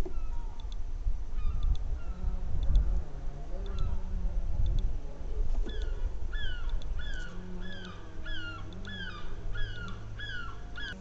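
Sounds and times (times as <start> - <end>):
animal calling: 5.6 - 11.0.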